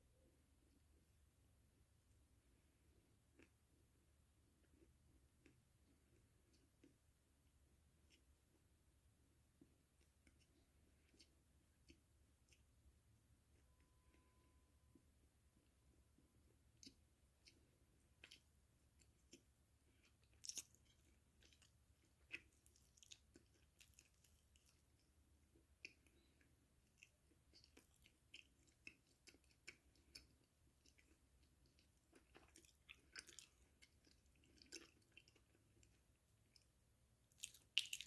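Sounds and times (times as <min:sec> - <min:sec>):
person chewing crunchy food: 0:16.5 - 0:36.7, 0:37.3 - 0:38.0.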